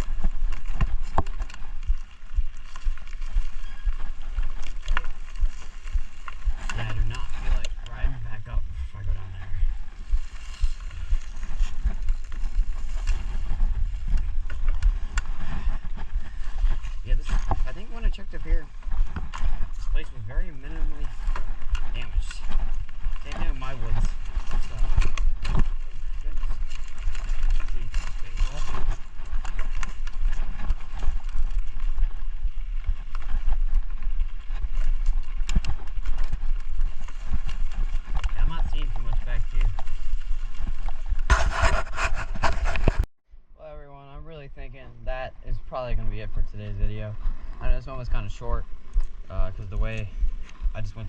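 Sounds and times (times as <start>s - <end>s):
bike clicks and rattles: 0.0s - 8.2s, 9.4s - 43.0s
wind buffeting microphone: 0.0s - 43.1s.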